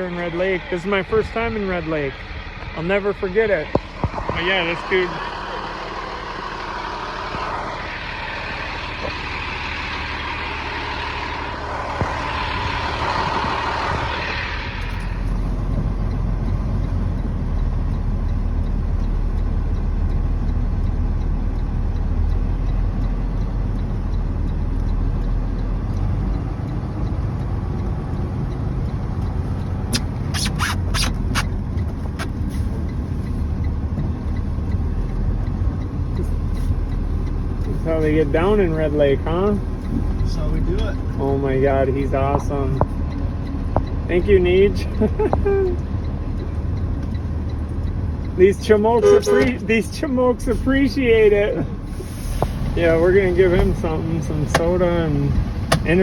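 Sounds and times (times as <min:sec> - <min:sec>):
truck diesel engine rumbling: 0:00.0 - 0:56.0
sharp clicks: 0:14.8 - 0:37.8.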